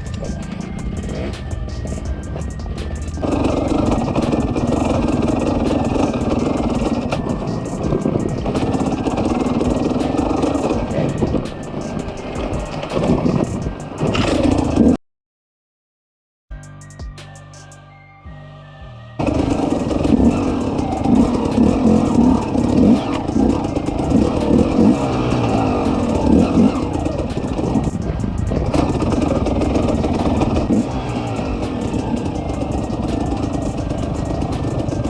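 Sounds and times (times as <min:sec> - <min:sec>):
off-road vehicle engine revving: 0:00.0 - 0:15.0, 0:19.2 - 0:35.0
rattling: 0:00.0 - 0:15.0, 0:19.2 - 0:35.0.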